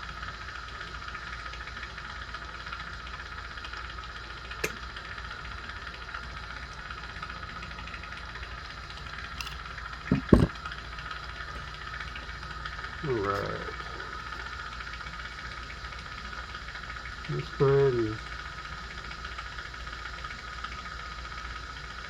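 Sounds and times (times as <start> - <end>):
loud knocks: 10.1 - 10.6.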